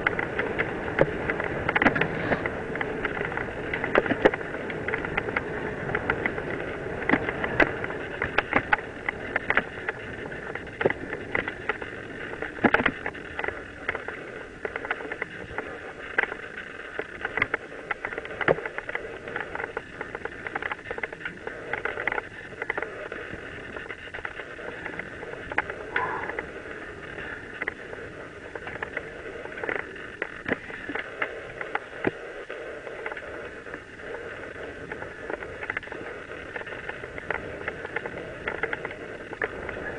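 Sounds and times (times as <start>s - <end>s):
bike knocks and rattles: 0.0s - 26.5s
bike tyres rolling on dirt: 0.0s - 39.9s.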